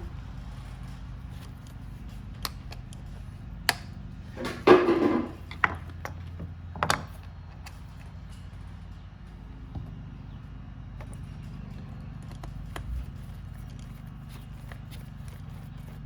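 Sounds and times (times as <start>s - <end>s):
steady low hum: 0.0s - 16.0s
clicks and knocks of small parts: 1.2s - 8.8s, 11.0s - 16.0s.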